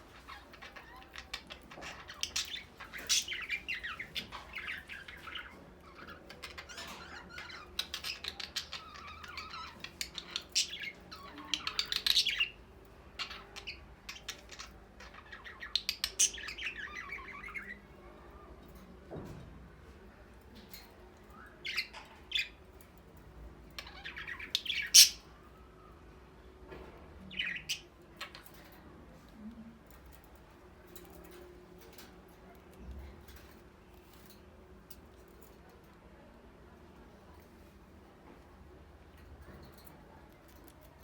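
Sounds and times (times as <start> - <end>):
parrots chirping and squawking: 0.0 - 17.8, 23.8 - 25.3.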